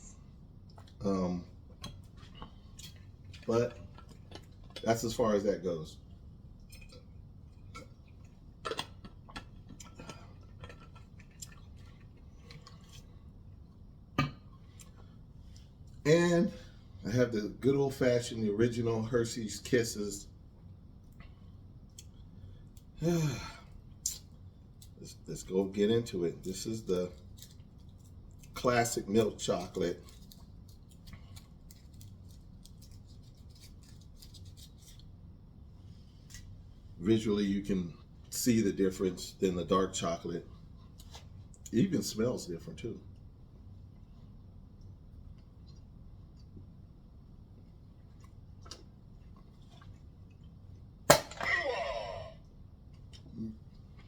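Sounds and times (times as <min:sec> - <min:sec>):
low steady hum: 0:00.0 - 0:54.0
foil wrapper crinkling: 0:27.2 - 0:35.1.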